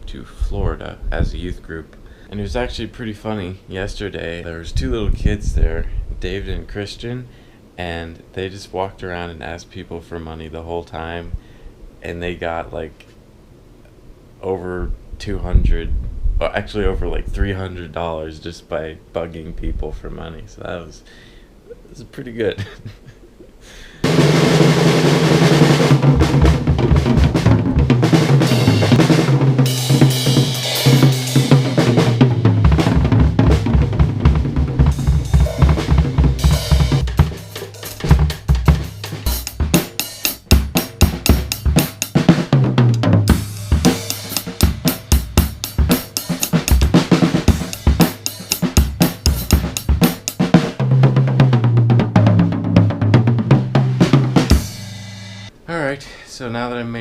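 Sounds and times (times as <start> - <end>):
loud rock music: 24.1 - 50.8, 53.6 - 55.5.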